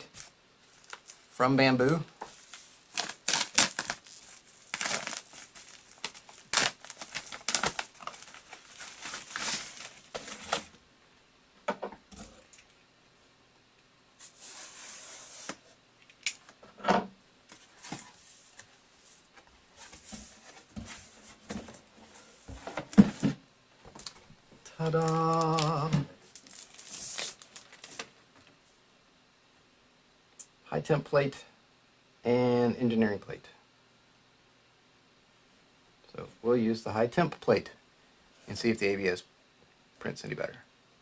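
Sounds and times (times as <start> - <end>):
packaging tearing and crinkling: 0.1 - 1.3, 2.4 - 10.8, 24.9 - 28.2.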